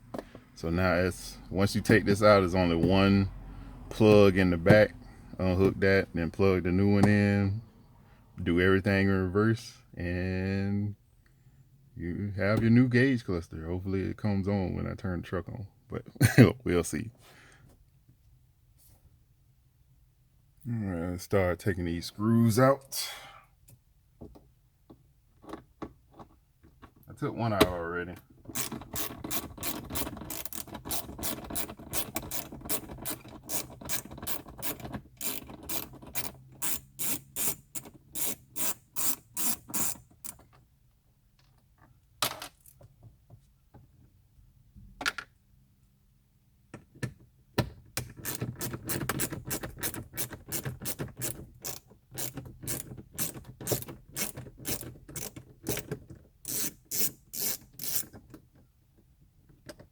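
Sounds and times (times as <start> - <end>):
ratchet clicking: 28.5 - 40.4, 48.2 - 58.1.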